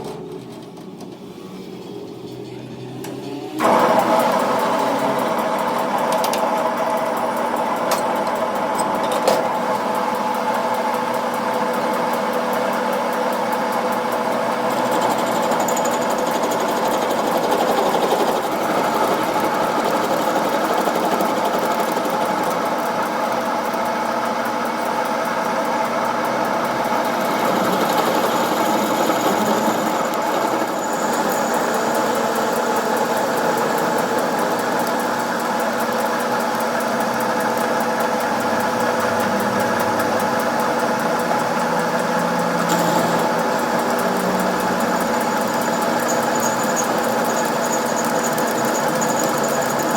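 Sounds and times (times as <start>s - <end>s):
machine motor humming and whining: 0.0s - 49.9s.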